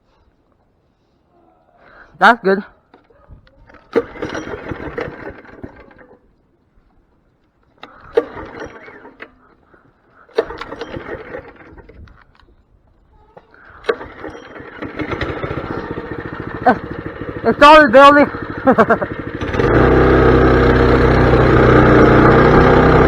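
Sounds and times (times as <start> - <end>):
small engine starting: 3.7 - 6.3, 7.8 - 12.4, 13.5 - 23.0.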